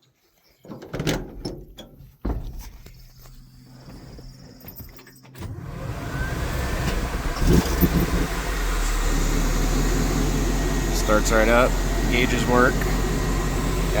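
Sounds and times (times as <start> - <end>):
truck engine starting and idling: 5.3 - 14.0.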